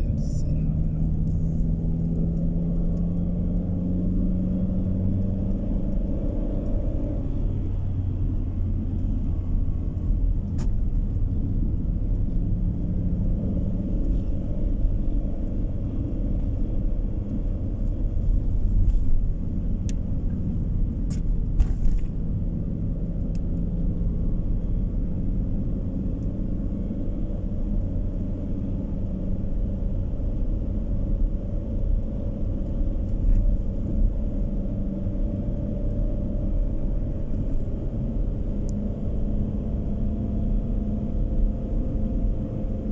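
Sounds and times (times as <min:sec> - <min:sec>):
car interior road rumble: 0:00.0 - 0:42.9.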